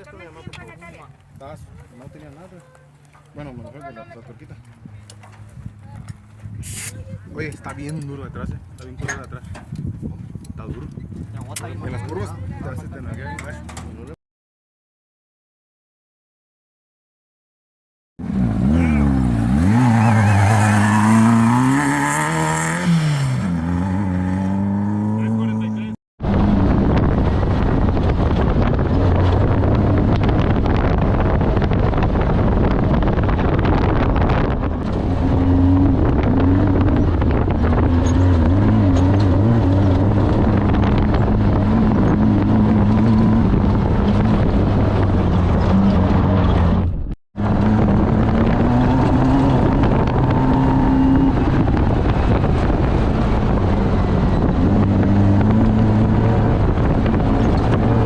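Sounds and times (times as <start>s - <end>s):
wind and road noise: 0.0s - 14.2s, 18.2s - 58.0s
off-road vehicle engine revving: 18.2s - 58.0s.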